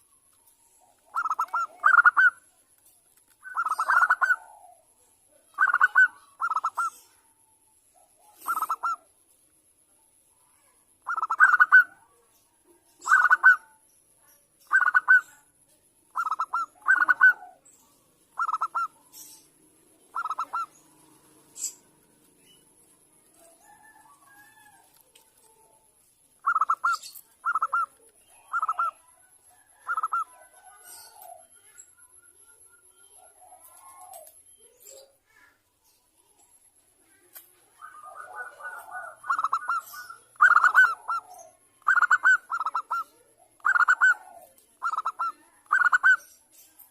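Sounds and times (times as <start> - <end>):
dove cooing in trilled phrases: 0.8 - 2.5, 3.4 - 7.3, 8.1 - 9.1, 11.0 - 12.2, 13.0 - 13.8, 14.6 - 15.4, 16.1 - 17.7, 18.3 - 22.0, 26.4 - 31.8, 37.8 - 46.3.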